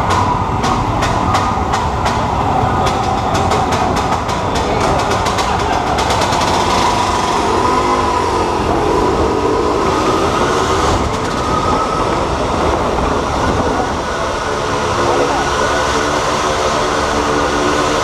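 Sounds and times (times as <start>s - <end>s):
motorcycle engine passing: 3.0s - 12.3s.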